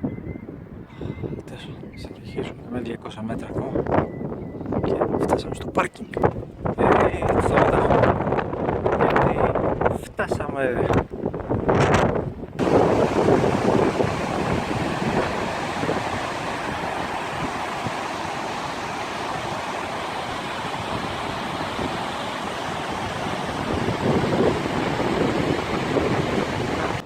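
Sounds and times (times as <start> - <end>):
wind: 0.0 - 27.0
ocean surf on shore: 12.6 - 27.0.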